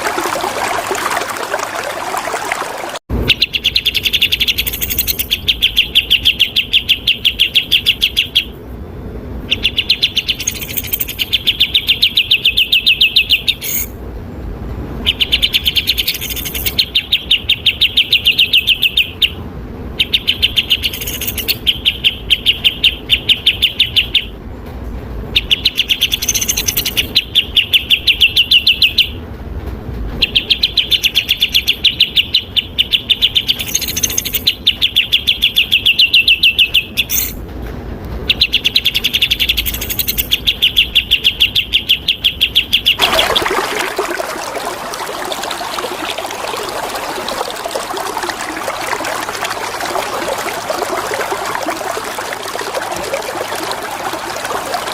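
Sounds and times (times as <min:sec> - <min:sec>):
running water: 0:00.0 - 0:03.1, 0:43.0 - 0:54.9
songbird singing fast trills: 0:09.5 - 0:13.9, 0:20.0 - 0:24.3, 0:38.3 - 0:43.0.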